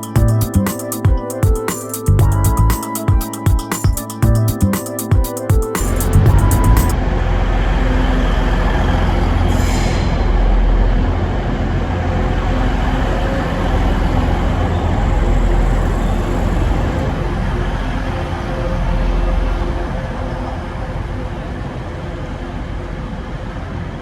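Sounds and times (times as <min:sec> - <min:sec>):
engine-like hum: 0:05.9 - 0:24.0
train rumbling: 0:05.9 - 0:24.0.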